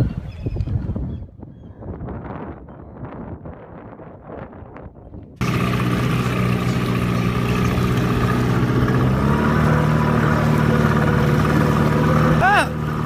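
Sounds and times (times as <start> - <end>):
faint wind: 0.0 - 13.0
boat engine running: 5.4 - 13.0.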